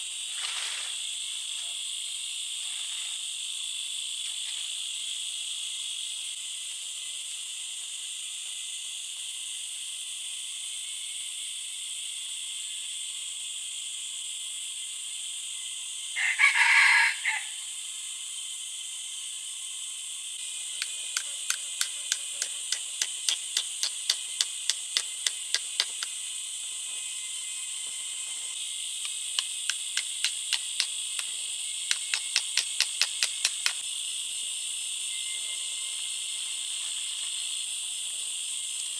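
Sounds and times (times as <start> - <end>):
insect chorus: 0.0 - 38.9
crow-like call: 16.2 - 17.6
sharp regular clicks: 20.8 - 26.2, 29.0 - 33.8.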